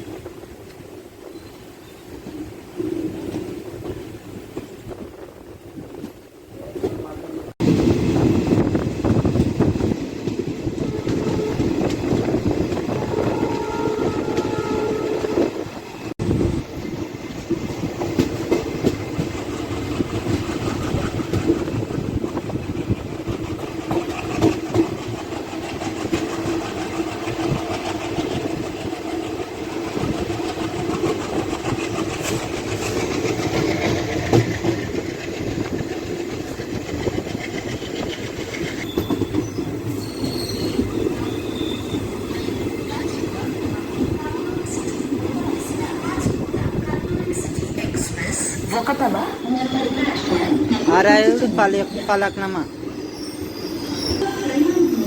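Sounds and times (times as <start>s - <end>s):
train rumbling on rails: 0.0s - 55.0s
wheels clicking over rail joints: 17.3s - 41.1s.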